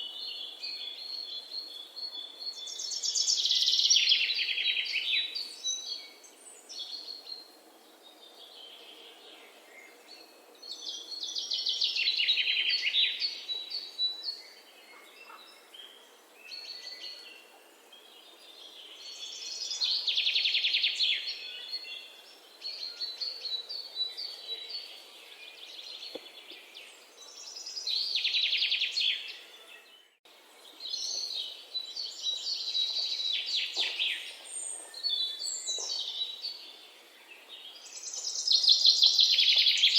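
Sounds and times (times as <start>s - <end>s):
songbird trilling song: 0.0s - 39.9s
bird chirps and calls: 30.9s - 36.8s.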